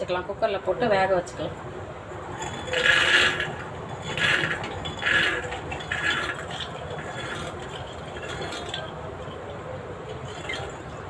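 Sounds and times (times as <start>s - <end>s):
peas scraped into a pot: 2.3s - 9.4s.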